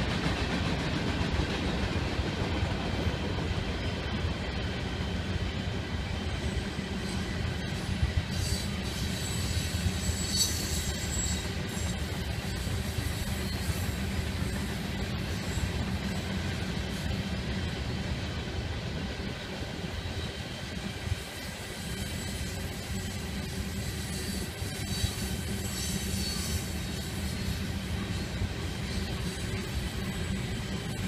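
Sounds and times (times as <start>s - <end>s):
freight train wheels rumbling: 0.0s - 31.0s
high-pitched wheel squeal: 8.3s - 14.7s, 21.7s - 31.0s.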